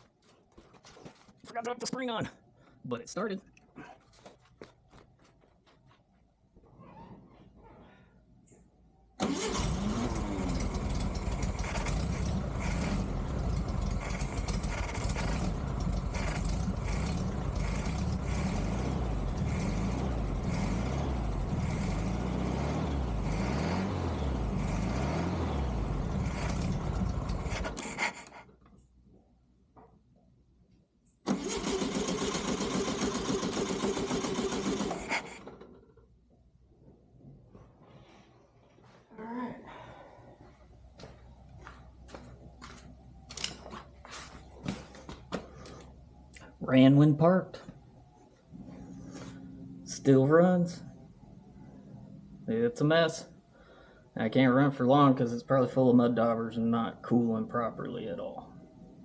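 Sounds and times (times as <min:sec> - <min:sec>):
car engine running: 0:09.6 - 0:28.3.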